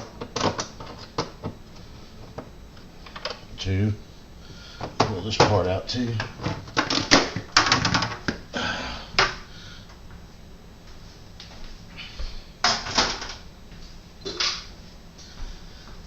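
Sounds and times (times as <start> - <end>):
plastic panel parts rattling: 6.2 - 8.3.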